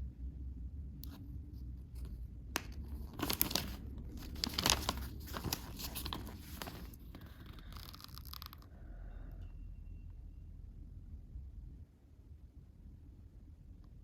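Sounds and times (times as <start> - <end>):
packaging crinkling and tearing: 2.6 - 8.7.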